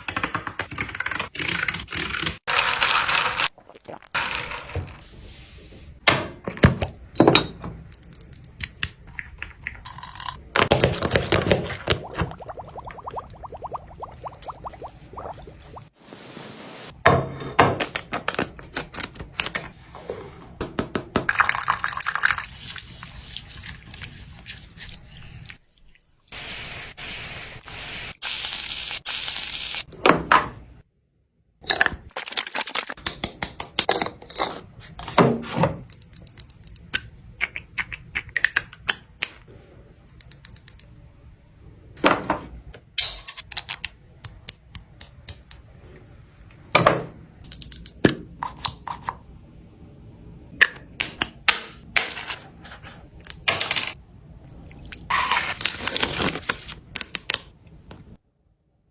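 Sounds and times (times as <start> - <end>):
running water: 11.7 - 16.9.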